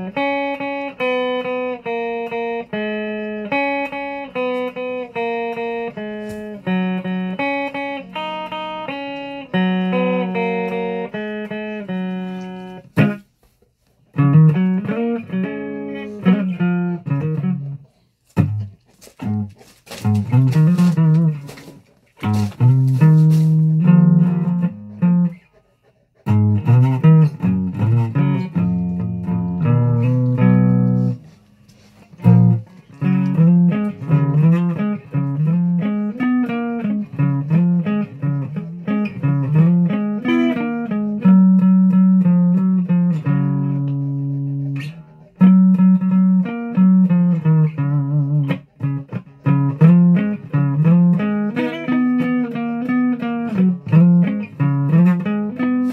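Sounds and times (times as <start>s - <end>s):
low guitar single notes: 26.3s - 31.3s.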